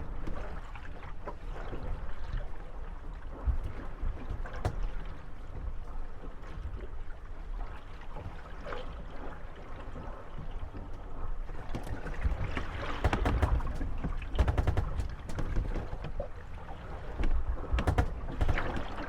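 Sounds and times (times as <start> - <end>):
water sloshing against hulls: 0.0 - 19.0
boat creaks: 3.3 - 7.0, 10.4 - 19.0
wooden boats knocking together: 3.5 - 5.8, 11.5 - 19.0.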